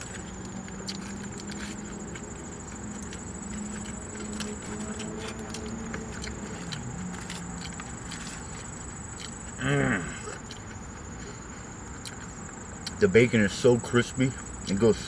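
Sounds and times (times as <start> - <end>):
low hum: 0.0 - 11.8
chewing crunchy food: 0.0 - 13.0.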